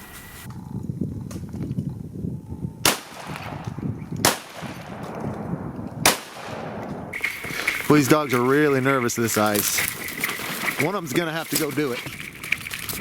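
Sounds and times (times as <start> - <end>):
shotgun shots: 2.8 - 7.2.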